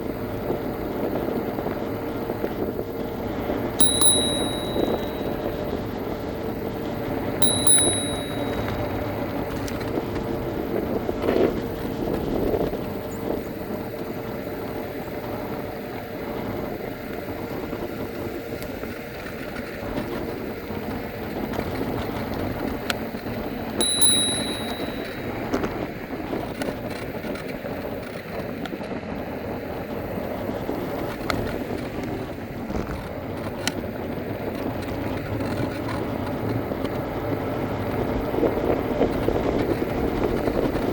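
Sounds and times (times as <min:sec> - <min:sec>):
electric scooter motor hum: 0:00.0 - 0:25.5
bell dinging: 0:03.8 - 0:05.5, 0:07.4 - 0:09.0, 0:23.8 - 0:25.5.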